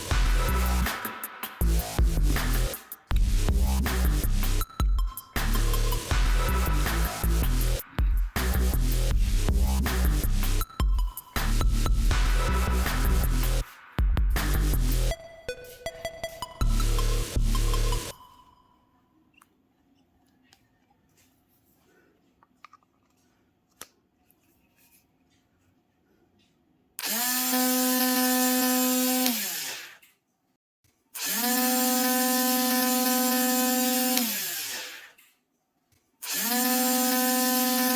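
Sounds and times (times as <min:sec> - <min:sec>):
small drill motor whining: 0:27.0 - 0:30.0, 0:31.2 - 0:35.2, 0:36.2 - 0:37.9.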